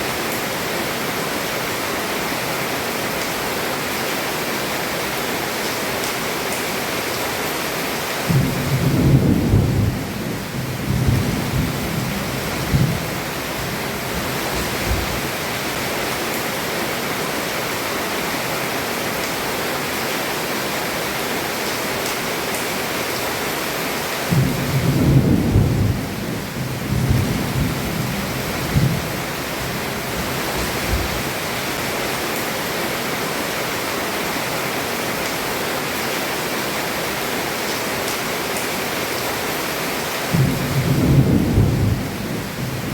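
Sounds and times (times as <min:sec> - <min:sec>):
heavy rain on roof: 0:00.0 - 0:42.9
thunder rumbling: 0:08.3 - 0:15.2, 0:24.3 - 0:31.3, 0:40.3 - 0:42.9.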